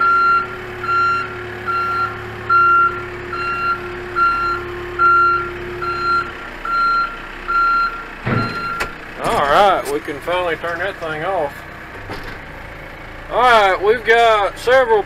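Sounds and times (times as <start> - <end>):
reverse alarm beeping: 0.0 - 9.0
backhoe engine hum: 0.0 - 15.0
short thump: 8.2 - 9.4.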